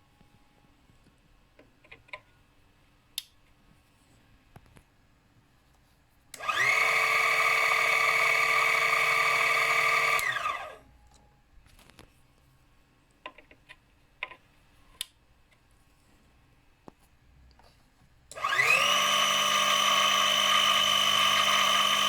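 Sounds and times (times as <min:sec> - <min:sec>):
small electric motor whining: 0:06.4 - 0:10.8, 0:18.4 - 0:22.0
faint clicks and knocks: 0:13.1 - 0:15.7.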